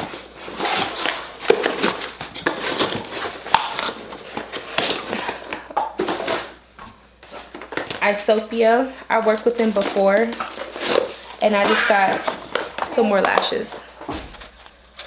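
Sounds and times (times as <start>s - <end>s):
packaging rustling: 9.7s - 13.1s.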